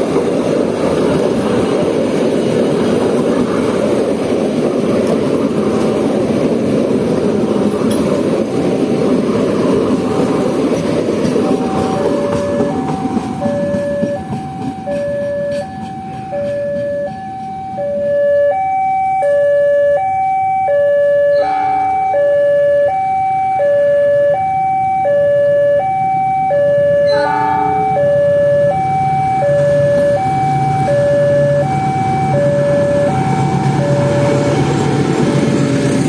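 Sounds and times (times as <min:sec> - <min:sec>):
level crossing two-tone alarm: 0:11.5 - 0:34.8.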